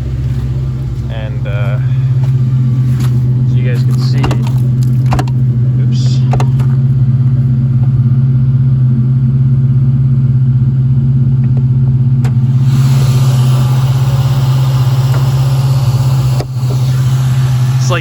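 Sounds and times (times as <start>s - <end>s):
car engine idling: 0.0s - 18.0s
broad hiss: 12.6s - 18.0s.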